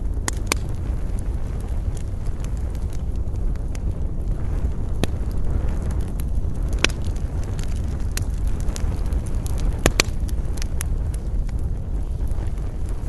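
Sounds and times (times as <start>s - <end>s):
campfire crackling: 0.0s - 13.0s
low rumble of wind: 0.0s - 13.0s.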